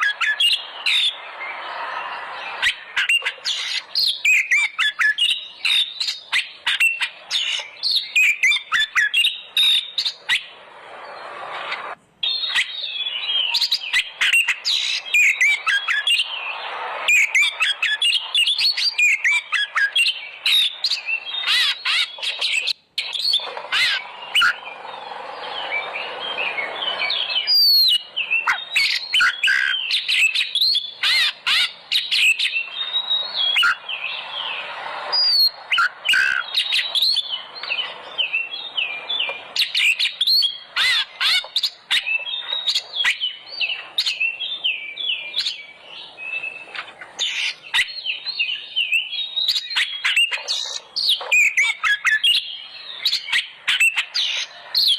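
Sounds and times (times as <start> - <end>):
magpie-robin singing: 0.0 - 54.9.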